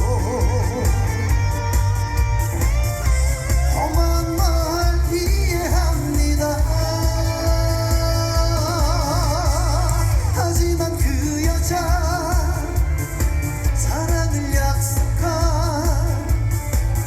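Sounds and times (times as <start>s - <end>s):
person singing with vibrato: 0.0s - 2.2s, 3.4s - 17.0s
band backing: 0.0s - 17.0s
heavy pulsing bass beat: 0.0s - 17.0s.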